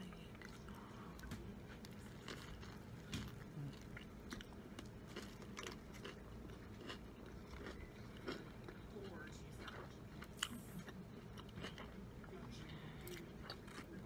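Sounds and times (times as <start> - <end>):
person chewing a sandwich: 0.2 - 14.0.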